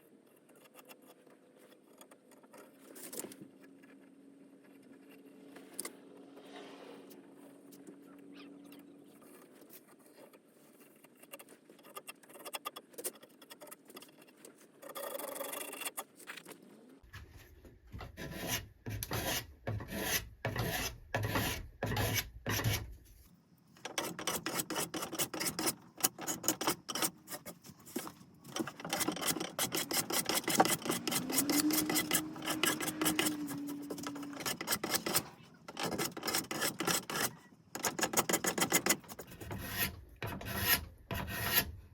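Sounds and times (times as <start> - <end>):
hand rasp scraping wood: 18.0 - 22.9, 23.8 - 41.9.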